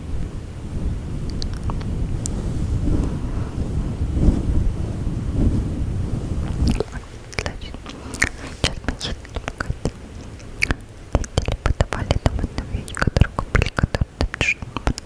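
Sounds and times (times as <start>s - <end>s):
windscreen rubbing on microphone: 0.0s - 10.7s
wet mouth clicks and smacks: 1.3s - 1.9s, 6.6s - 15.0s.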